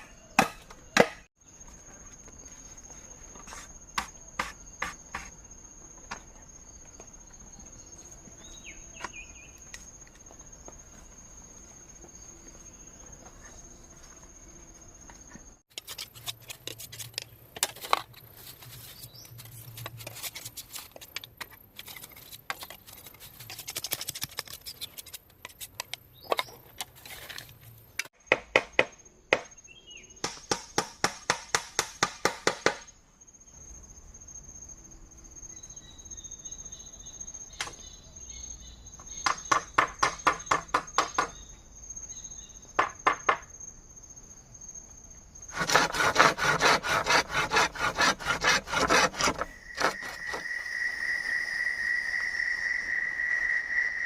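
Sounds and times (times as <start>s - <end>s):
insects trilling: 32.8s - 54.0s
tool strokes on bamboo: 45.5s - 50.6s.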